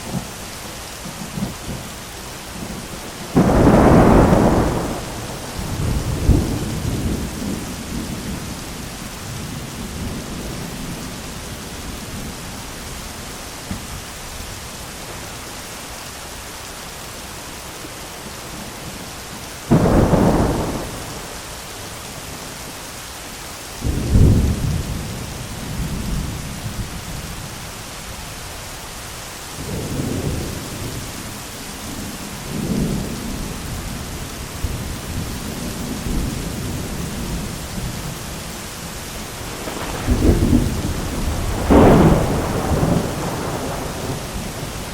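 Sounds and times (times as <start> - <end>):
heavy rain: 0.0 - 44.9
rolling thunder: 2.6 - 11.3, 19.7 - 21.5, 23.8 - 27.5, 39.2 - 44.9
sharp thunderclap: 3.2 - 8.5, 19.7 - 21.4, 23.8 - 26.4, 39.4 - 44.9.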